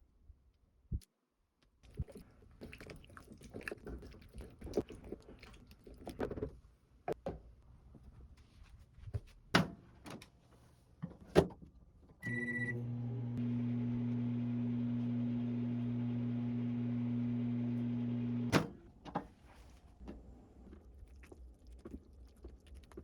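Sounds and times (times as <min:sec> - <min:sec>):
microwave oven beep: 0:12.2 - 0:18.5
microwave oven humming: 0:12.2 - 0:18.5.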